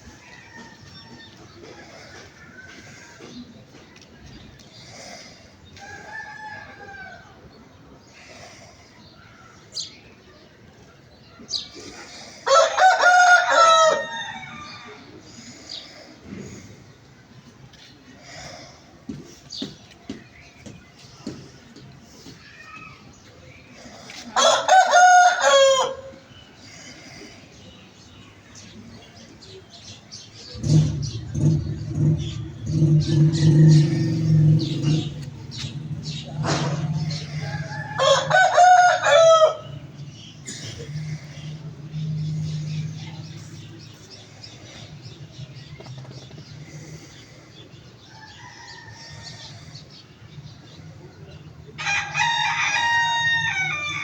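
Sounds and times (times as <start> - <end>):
small birds chirping: 0.0 - 12.4, 14.4 - 24.4, 25.8 - 51.7
rooster crowing: 12.5 - 15.0, 24.4 - 26.2, 30.6 - 39.9, 51.8 - 54.0
motor engine running: 30.5 - 38.0.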